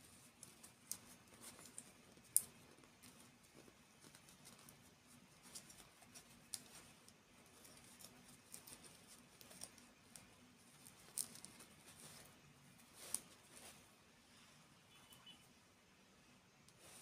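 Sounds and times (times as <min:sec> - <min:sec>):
small objects clicking when handled: 0:00.3 - 0:04.8, 0:05.4 - 0:12.3.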